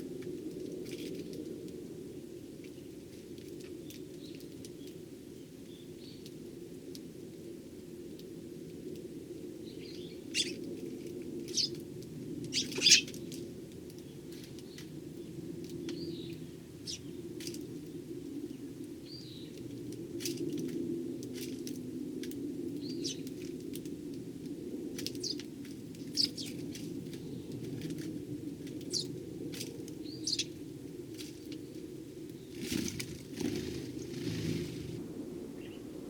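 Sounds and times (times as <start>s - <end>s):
sparrows chirping: 9.6s - 10.6s, 11.5s - 11.8s, 12.5s - 13.4s, 14.0s - 19.6s, 22.8s - 23.4s, 25.1s - 25.4s, 26.0s - 27.9s, 28.8s - 29.1s, 29.9s - 30.7s, 32.4s - 35.0s.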